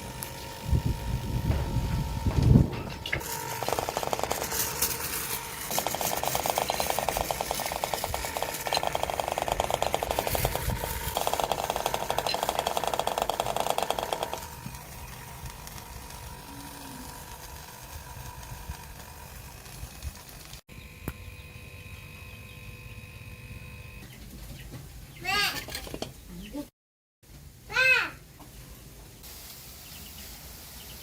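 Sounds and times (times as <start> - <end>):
air engine rattling: 0.0 - 20.6.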